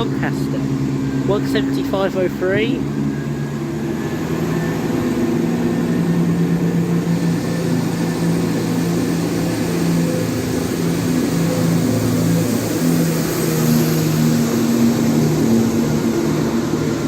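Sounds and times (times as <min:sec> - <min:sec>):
train diesel engines humming: 0:00.0 - 0:17.0.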